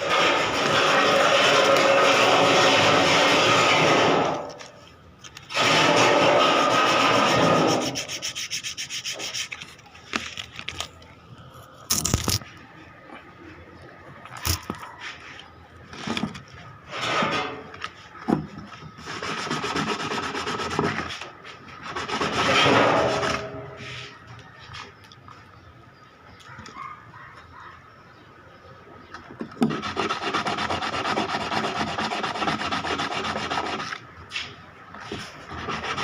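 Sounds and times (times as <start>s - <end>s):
rubbing and scraping strokes: 0.0s - 10.8s, 16.9s - 24.2s, 29.6s - 36.0s.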